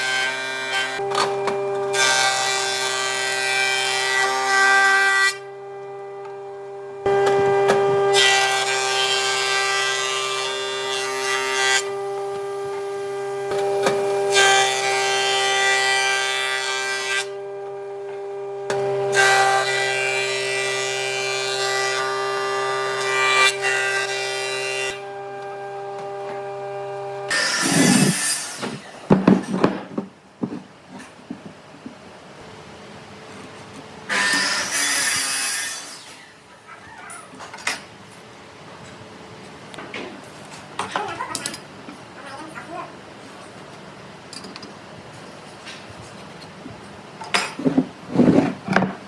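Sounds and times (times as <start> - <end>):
power tool motor humming: 5.3 - 9.6, 22.2 - 29.4
wood grinding: 24.9 - 32.0.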